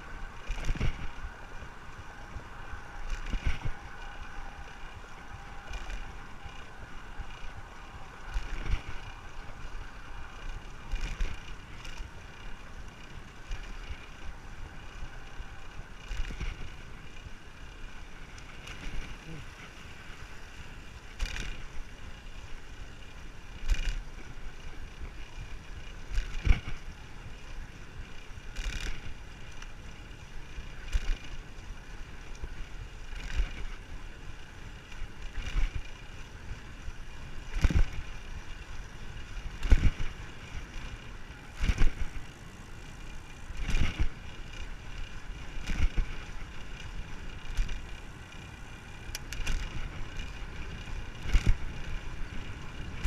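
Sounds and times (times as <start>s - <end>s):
wind rushing over microphone: 0.0s - 17.6s, 34.8s - 48.3s.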